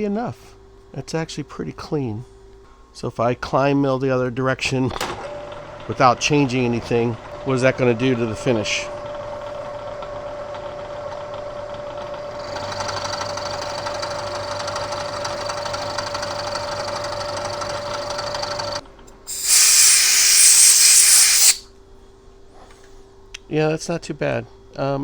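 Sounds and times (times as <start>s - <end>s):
milling machine hum: 12.3s - 21.6s
loud hiss: 19.3s - 21.6s
metal cutting noise: 19.3s - 21.6s.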